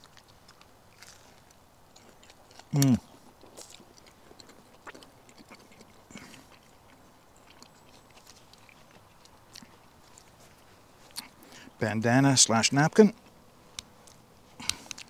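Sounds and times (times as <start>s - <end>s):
faint chewing of crisp food: 0.0s - 15.0s.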